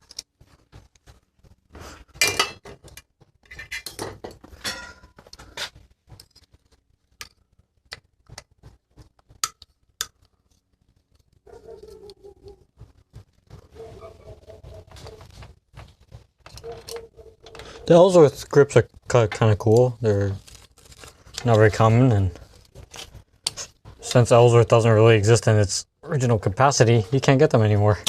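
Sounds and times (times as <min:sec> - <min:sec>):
metal tools clinking and tapping: 0:02.2 - 0:05.5, 0:16.4 - 0:17.9
squeaky rubbing: 0:03.4 - 0:03.9, 0:11.5 - 0:18.0.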